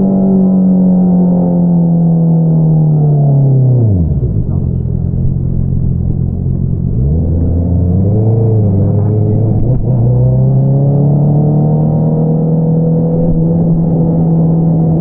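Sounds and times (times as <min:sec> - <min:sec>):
motorcycle engine revving: 0:03.4 - 0:15.0.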